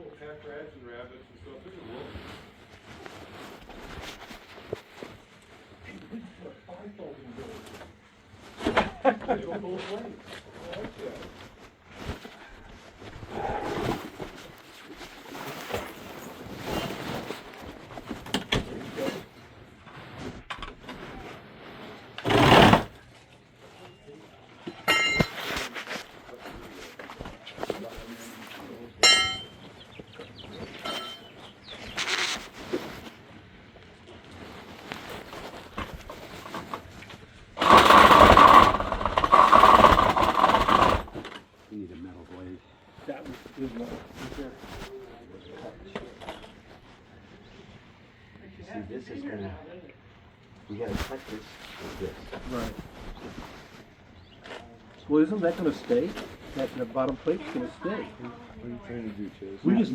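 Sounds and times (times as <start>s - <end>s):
timber knocking and clattering: 22.2s - 22.9s, 37.6s - 41.4s
power saw cutting wood: 22.2s - 23.0s, 37.6s - 41.4s.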